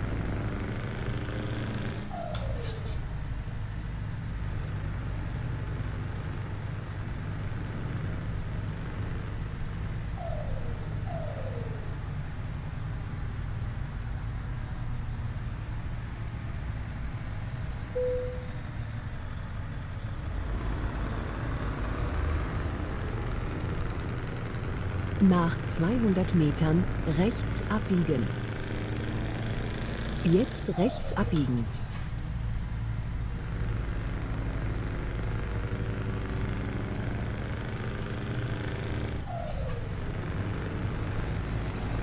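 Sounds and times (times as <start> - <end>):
diesel truck engine running: 0.0 - 42.0
short falling squeaks: 2.1 - 3.1, 39.3 - 40.1
brief steady tone: 18.0 - 18.6.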